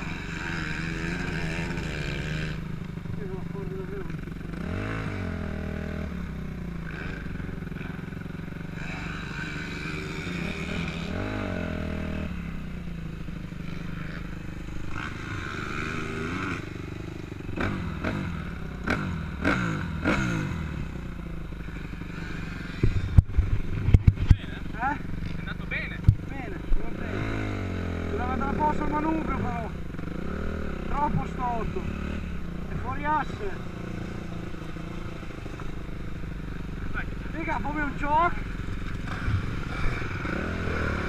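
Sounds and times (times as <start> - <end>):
motocross engine revving: 0.0 - 41.0
sharp knocks and clatters: 22.8 - 24.4.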